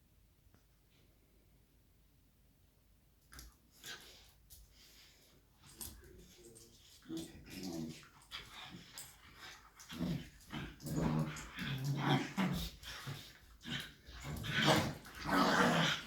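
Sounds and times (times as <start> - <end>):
puppies growling in play: 7.0 - 16.0.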